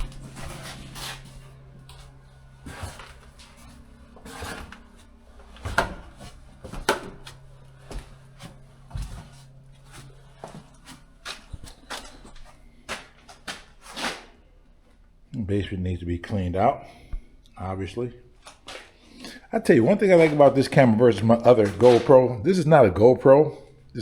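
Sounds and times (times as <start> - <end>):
low steady hum: 0.0 - 24.0
knocks and thumps: 4.2 - 10.7.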